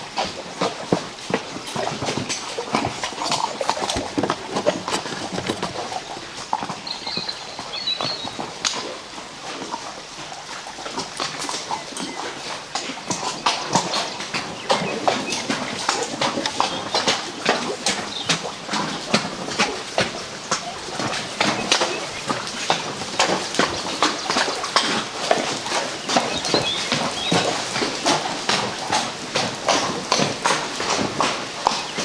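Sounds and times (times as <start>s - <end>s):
horse hooves clopping: 2.8s - 7.3s.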